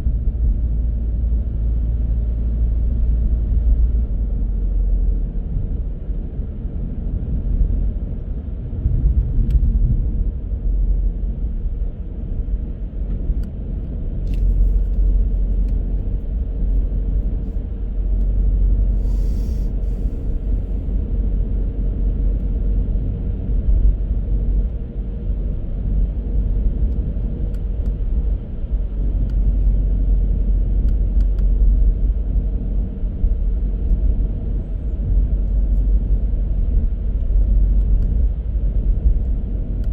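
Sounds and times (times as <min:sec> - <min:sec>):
car driving rumble: 0:00.0 - 0:39.9
faint steady hum: 0:00.0 - 0:39.9
brief hiss: 0:18.9 - 0:20.3.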